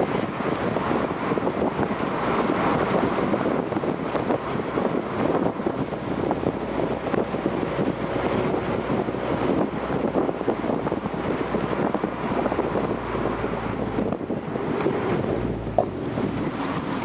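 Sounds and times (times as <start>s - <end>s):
road noise: 0.0s - 17.0s
wind rush: 0.0s - 17.0s
car exhaust note: 5.3s - 16.5s.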